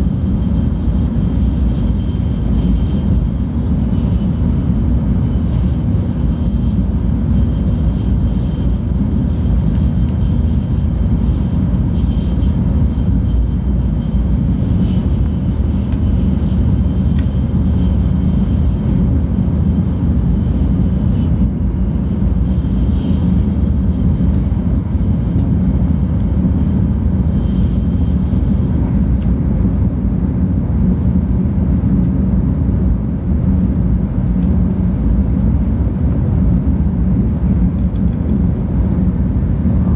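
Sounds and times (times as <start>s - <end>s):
train cabin deep rumble: 0.0s - 39.9s.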